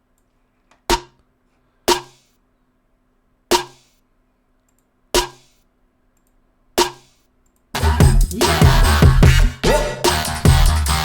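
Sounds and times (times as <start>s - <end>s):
electronic snare hits: 0.9s - 1.2s, 1.9s - 2.4s, 3.5s - 4.0s, 5.2s - 5.6s, 6.8s - 7.2s
dubstep beat with heavy bass: 7.8s - 11.0s.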